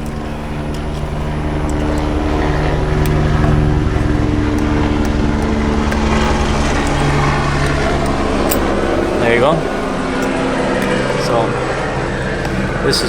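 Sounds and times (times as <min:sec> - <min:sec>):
engine-like drone: 0:00.0 - 0:13.0
pliers clicking on metal: 0:03.0 - 0:11.1.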